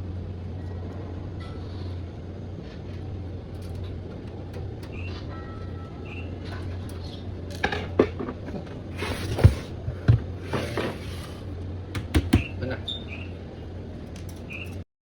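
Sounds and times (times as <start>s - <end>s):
steady low hum: 0.0s - 14.8s
computer case knocks and scrapes: 9.0s - 11.4s.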